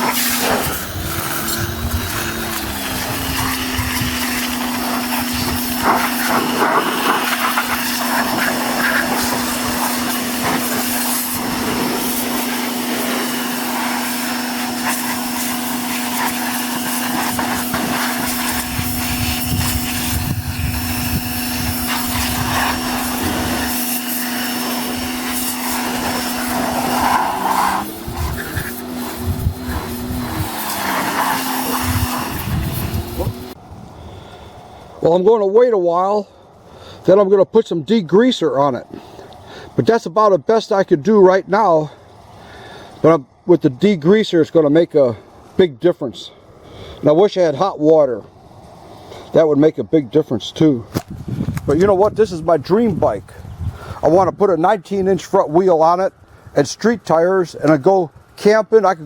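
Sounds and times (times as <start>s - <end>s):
pressure washer motor hum: 0.0s - 33.6s
water spray hissing: 0.0s - 33.6s.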